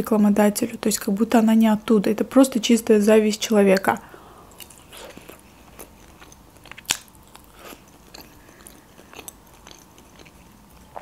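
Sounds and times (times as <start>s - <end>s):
person chewing food: 4.5s - 11.0s.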